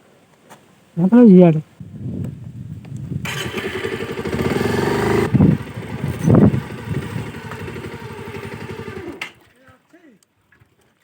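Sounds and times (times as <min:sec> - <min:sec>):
motorcycle engine running: 0:03.2 - 0:09.5.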